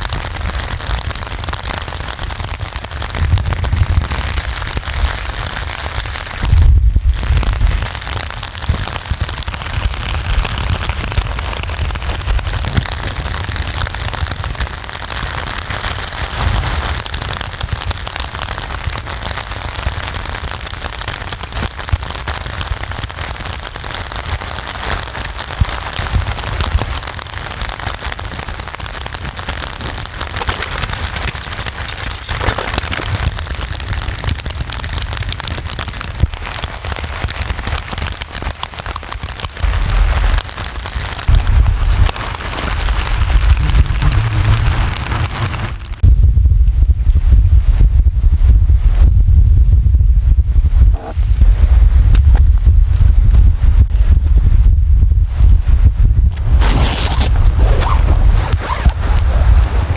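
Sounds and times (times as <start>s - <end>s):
steady rain patter: 0.0s - 59.9s
low rumble: 41.3s - 59.9s.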